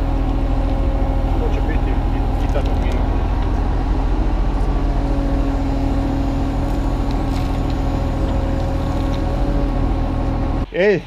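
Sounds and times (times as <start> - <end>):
excavator diesel engine under load: 0.0 - 10.7
hydraulic whine: 0.0 - 10.7.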